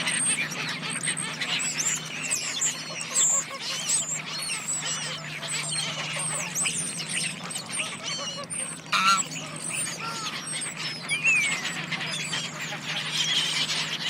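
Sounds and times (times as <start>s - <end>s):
steady low hum: 0.0s - 14.0s
geese honking: 7.3s - 14.0s.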